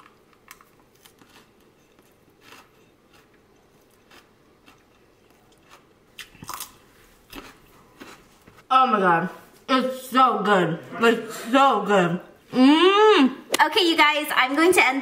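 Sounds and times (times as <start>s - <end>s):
faint chewing and crunching: 0.0s - 8.7s.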